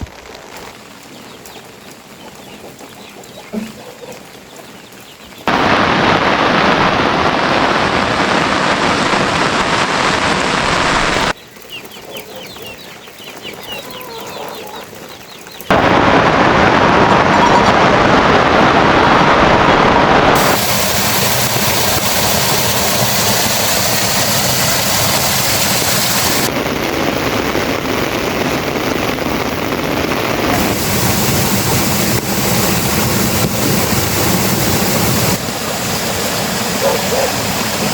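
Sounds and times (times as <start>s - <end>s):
rain falling: 0.0s - 3.4s, 4.1s - 11.4s, 13.0s - 37.9s
faint bird calls: 11.5s - 15.7s.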